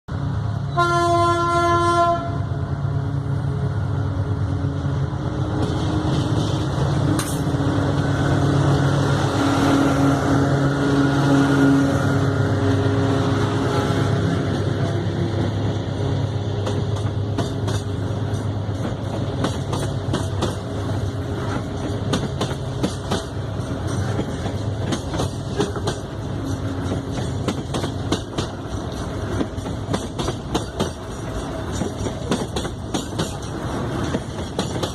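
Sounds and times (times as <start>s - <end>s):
diesel locomotive engine drone: 0.1s - 34.9s
train horn blast: 0.6s - 3.3s
wheels clicking over rail joints: 16.6s - 34.9s.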